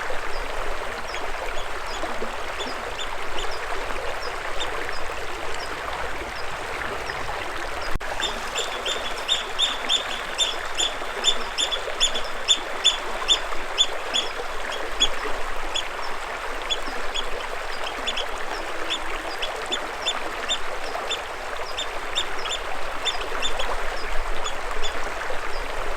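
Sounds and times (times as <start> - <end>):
running water: 0.0 - 25.9
bird calling high repeated notes: 8.2 - 13.4.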